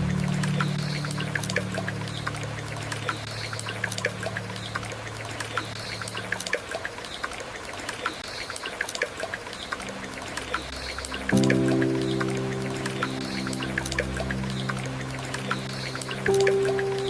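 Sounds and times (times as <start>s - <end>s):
soft piano chord: 0.0s - 6.2s, 9.8s - 17.0s
waterfall trickling and splashing: 0.0s - 17.0s.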